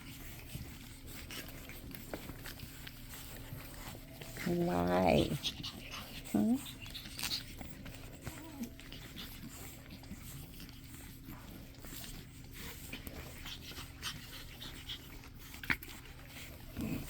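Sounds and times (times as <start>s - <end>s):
small scratching clicks: 0.0s - 4.5s
puppies panting and snuffling: 0.0s - 17.0s.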